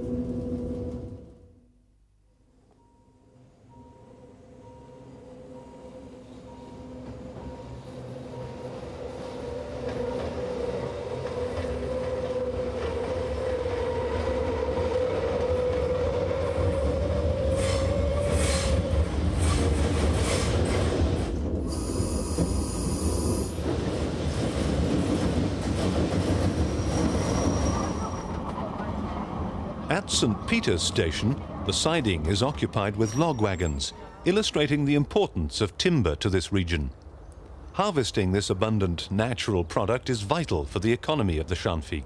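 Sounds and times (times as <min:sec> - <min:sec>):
electric railcar rumble: 0:00.0 - 0:01.6, 0:02.8 - 0:42.0
high wheel squeal: 0:26.6 - 0:28.5.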